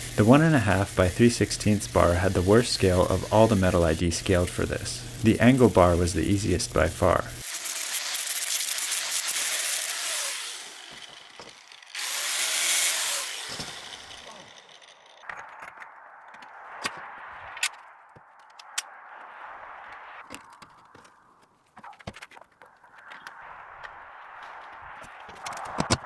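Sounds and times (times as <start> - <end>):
rasping on metal: 0.0 - 14.8
angle grinder grinding metal: 0.0 - 15.6.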